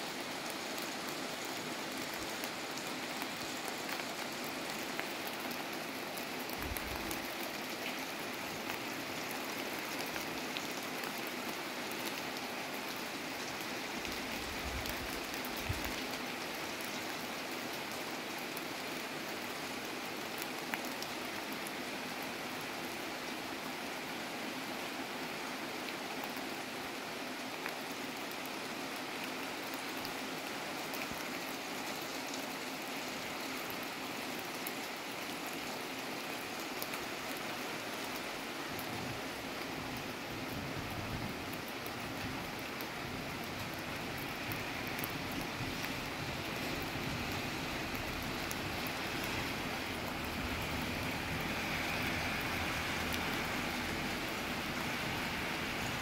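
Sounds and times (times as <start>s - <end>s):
heavy rain on pavement and cars: 0.0s - 56.0s
rain drop ticks: 41.5s - 46.0s.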